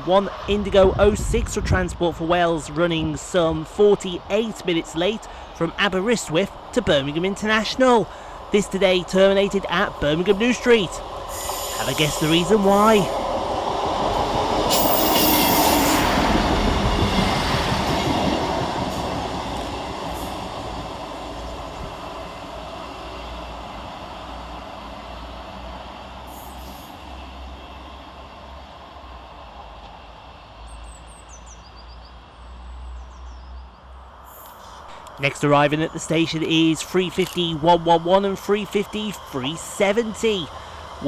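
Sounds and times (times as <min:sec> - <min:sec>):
train wheel and rail noise: 0:00.0 - 0:41.0
bird chirps: 0:30.6 - 0:34.7.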